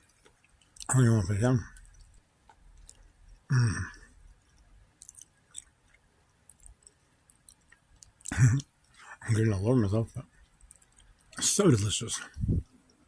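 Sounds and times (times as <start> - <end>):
person chewing food: 0.0 - 1.0, 1.7 - 9.2, 10.2 - 11.5
wet mouth clicks: 1.8 - 9.1.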